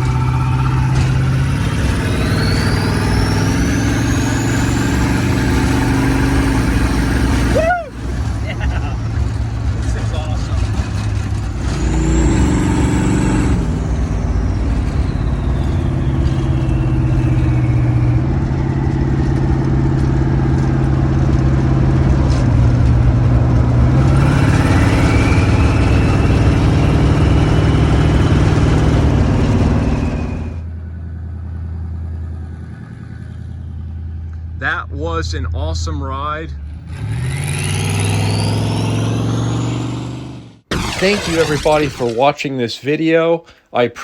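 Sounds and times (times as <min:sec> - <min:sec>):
high turbo whine: 0:00.0 - 0:42.3
car engine pulling: 0:00.0 - 0:43.7.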